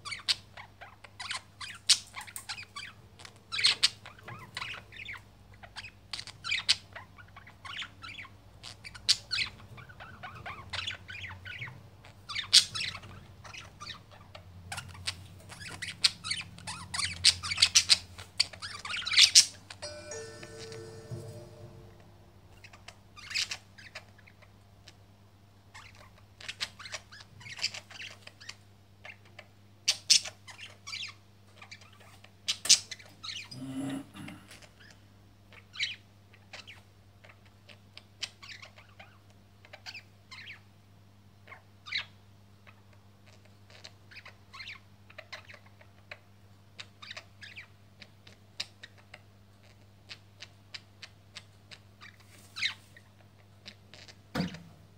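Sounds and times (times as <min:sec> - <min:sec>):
birds chirping and squawking: 0:00.0 - 0:21.6
faint low hum: 0:19.8 - 0:22.7.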